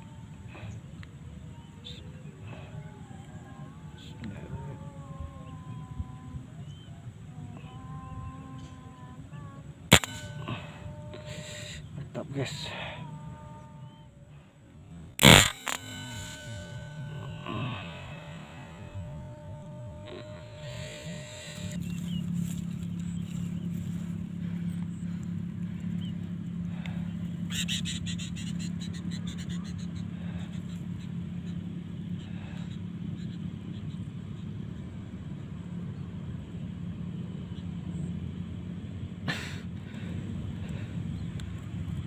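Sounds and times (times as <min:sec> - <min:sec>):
low motor hum: 0:00.0 - 0:42.0
sharp click: 0:09.9 - 0:10.4, 0:15.2 - 0:17.0
short fast high rattle: 0:09.9 - 0:10.7, 0:15.2 - 0:19.0.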